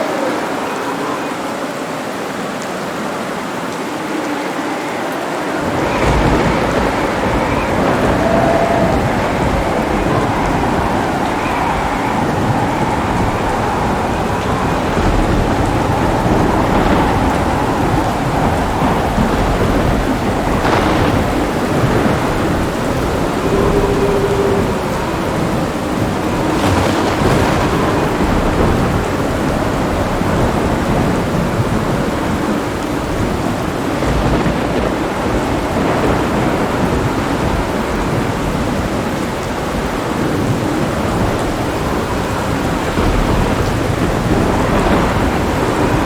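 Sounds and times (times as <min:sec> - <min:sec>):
heavy rain: 0:00.0 - 0:46.0
thunder rumbling: 0:04.0 - 0:46.0.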